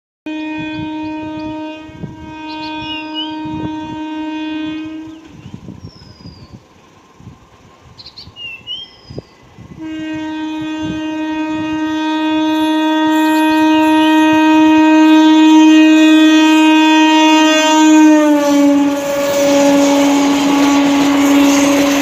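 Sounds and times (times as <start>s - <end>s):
train horn long blast: 0.3s - 5.7s, 9.8s - 22.0s.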